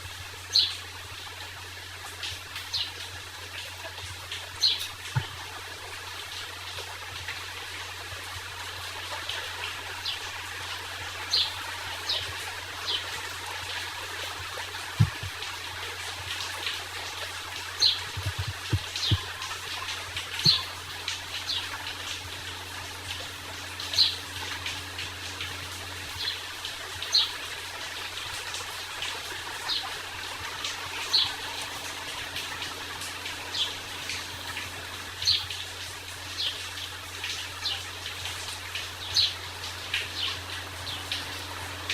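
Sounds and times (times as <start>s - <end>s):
steady rain falling: 0.0s - 41.9s
birds chirping: 14.8s - 15.3s, 17.7s - 20.8s
low thud: 15.0s - 15.3s.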